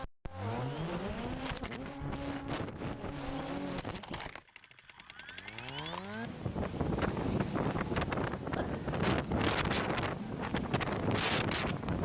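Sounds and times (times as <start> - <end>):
engine revving: 0.0 - 4.4, 5.0 - 6.4
engine accelerating: 0.0 - 6.5.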